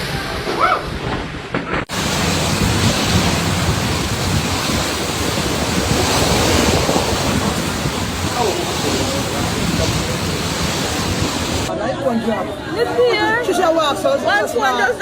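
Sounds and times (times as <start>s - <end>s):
loud rushing noise: 1.9s - 11.7s
faint voices: 4.8s - 12.0s.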